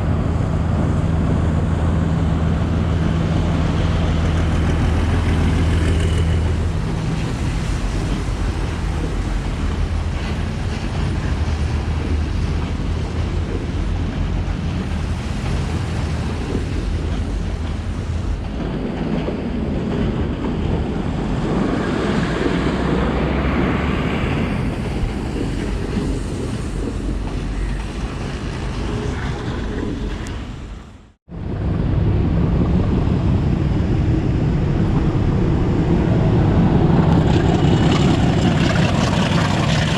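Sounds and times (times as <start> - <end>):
low engine hum: 0.0 - 18.6, 30.6 - 39.9
train rushing hiss: 21.0 - 31.1.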